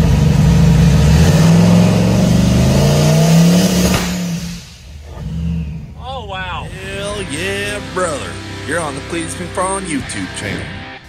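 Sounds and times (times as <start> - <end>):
car engine revving: 0.0 - 11.0
sharp crack: 2.3 - 5.8.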